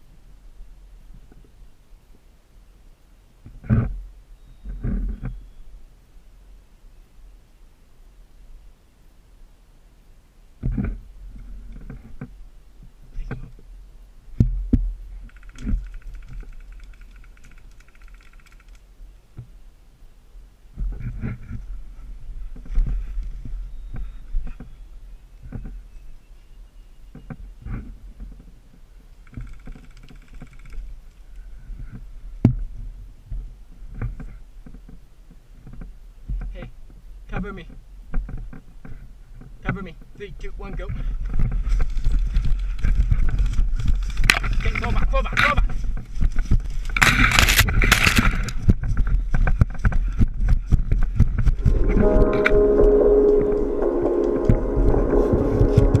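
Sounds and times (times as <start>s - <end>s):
rustling of gear on microphone: 3.4s - 5.7s, 10.6s - 13.7s, 14.3s - 19.6s, 20.7s - 26.3s, 27.0s - 37.1s, 37.8s - 52.9s, 53.5s - 56.0s
gear rattling: 15.3s - 18.8s
steady multi-tone hum: 46.0s - 56.0s
sharp crack: 46.9s - 48.6s
pulsing high tone: 51.6s - 56.0s.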